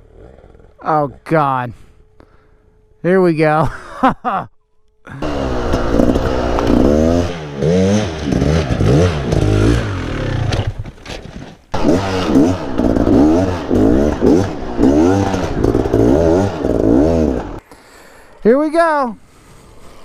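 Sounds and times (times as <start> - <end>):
dirt bike revving: 5.1 - 10.7, 11.7 - 17.6.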